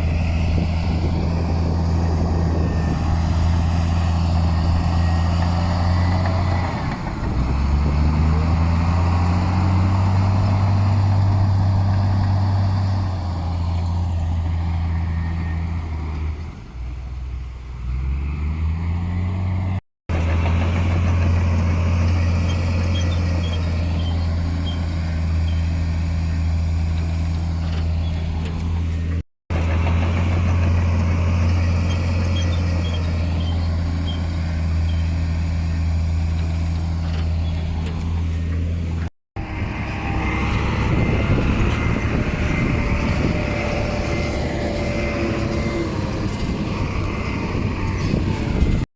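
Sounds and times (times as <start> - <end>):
heavy diesel engine running: 0.0 - 17.4, 18.8 - 48.9.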